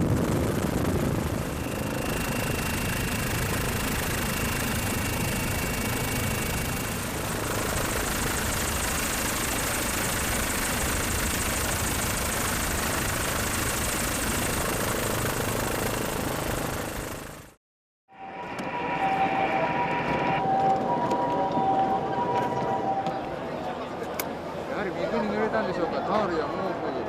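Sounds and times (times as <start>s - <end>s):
loud engine drone: 0.1s - 13.5s, 18.1s - 23.6s
thin high whine: 1.2s - 8.5s, 18.1s - 23.6s.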